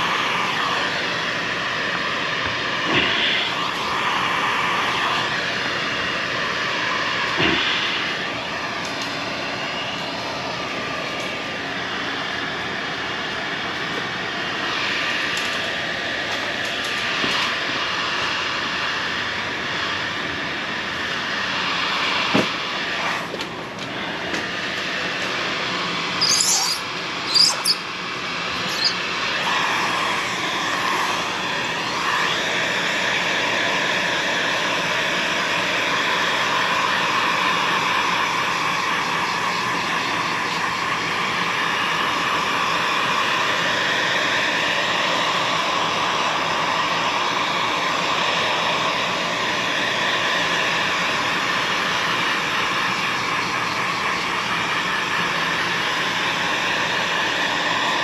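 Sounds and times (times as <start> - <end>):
fan motor whirring: 0.0 - 58.0
short high squeaks: 26.2 - 27.9, 28.6 - 29.0.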